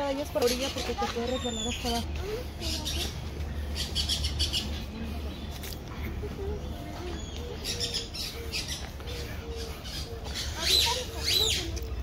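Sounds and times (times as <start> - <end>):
low repeated bird call: 7.0 - 11.7.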